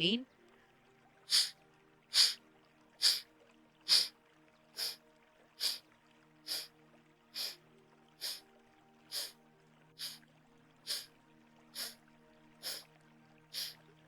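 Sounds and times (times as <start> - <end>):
forceful nasal exhalations: 1.3 - 1.5, 2.1 - 2.4, 3.0 - 3.2, 3.9 - 4.1, 4.8 - 5.0, 5.6 - 5.8, 6.5 - 6.7, 7.4 - 7.6, 9.1 - 9.3, 10.0 - 10.2, 10.9 - 11.1, 11.8 - 12.0, 12.6 - 12.8, 13.6 - 13.8.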